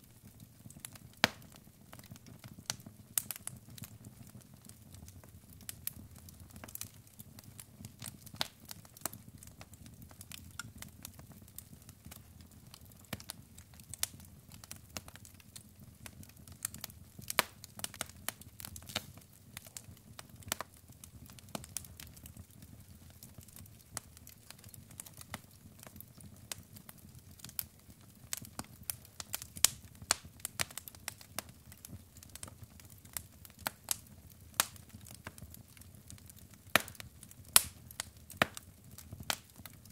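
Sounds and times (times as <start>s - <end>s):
logs crackling in fireplace: 0.0s - 39.9s.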